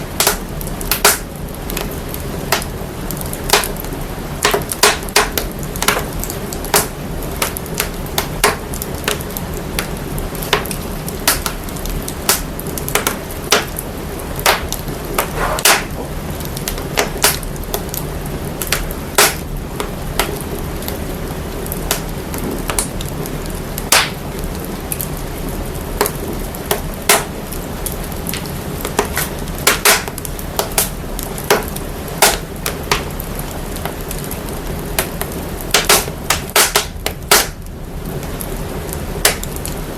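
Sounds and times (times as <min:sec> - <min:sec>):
fire crackling and popping: 0:00.0 - 0:39.9
fire hiss and deep rumble: 0:00.0 - 0:39.9.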